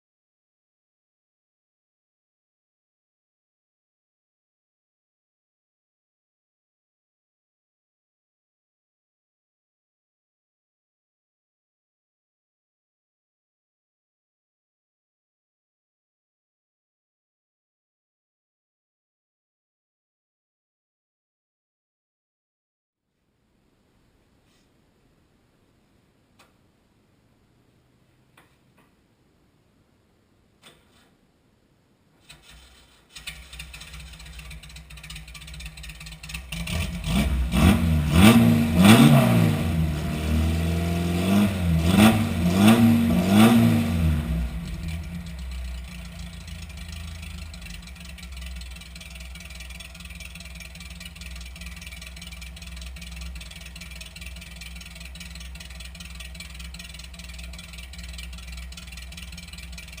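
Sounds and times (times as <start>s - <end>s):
car engine idling and revving: 33.2s - 60.0s.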